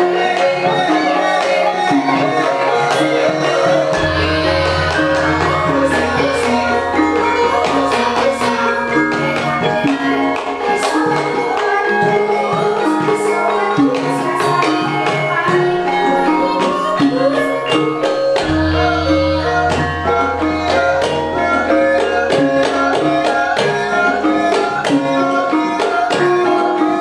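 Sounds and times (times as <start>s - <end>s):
hand drum strokes: 0.0s - 27.0s
ringing metallophone notes: 0.0s - 27.0s
deep low tone: 4.0s - 8.3s.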